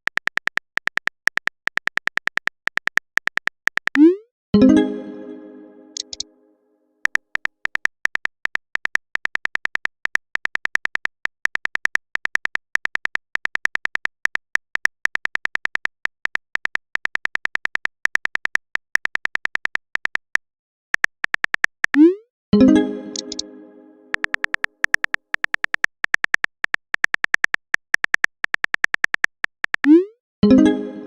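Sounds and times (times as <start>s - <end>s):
phone keyboard typing clicks: 0.0s - 4.2s, 6.0s - 6.3s, 7.0s - 20.4s, 21.0s - 22.2s, 23.1s - 23.4s, 24.1s - 30.1s.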